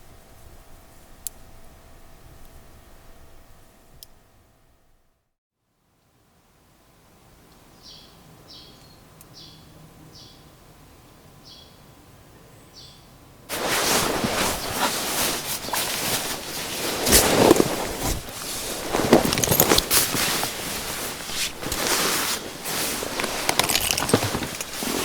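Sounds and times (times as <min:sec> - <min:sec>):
rustling and crackling: 0:13.5 - 0:25.0.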